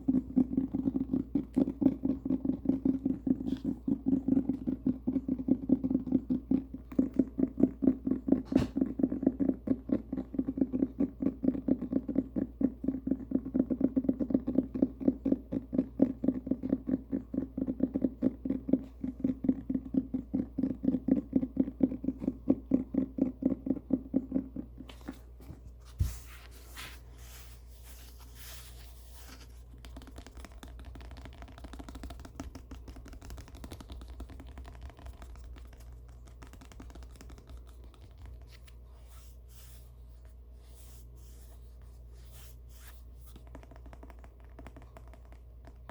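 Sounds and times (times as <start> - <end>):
cat purring: 0.0 - 45.9
book pages rustling: 24.9 - 45.2.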